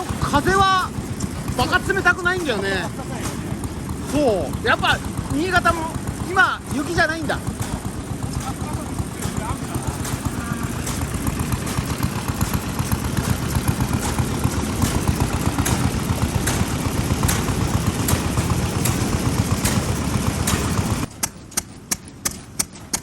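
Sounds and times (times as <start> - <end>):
engine exhaust bangs: 0.0 - 23.0
heavy low engine rumble: 0.0 - 23.0.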